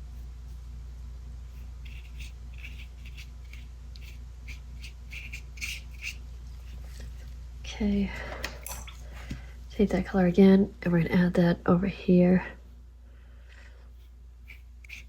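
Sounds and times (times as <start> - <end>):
scratchy paintbrush strokes on paper: 0.0 - 7.2, 13.9 - 15.0
low hum: 0.0 - 15.0.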